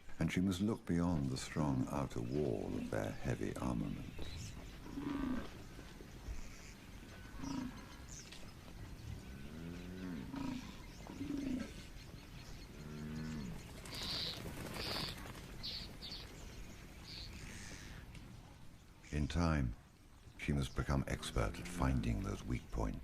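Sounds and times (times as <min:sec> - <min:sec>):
large animals grunting: 0:07.1 - 0:08.1, 0:09.2 - 0:11.8.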